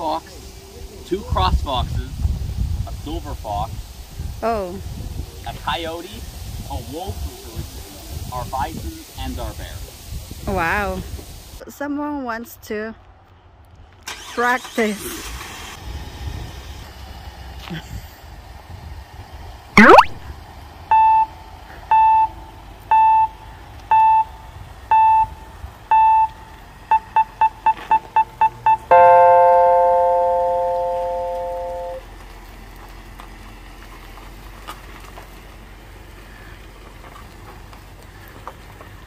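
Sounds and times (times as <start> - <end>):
electronic beeps: 19.8 - 20.2, 21.9 - 32.0
long three-note tone: 28.9 - 32.0.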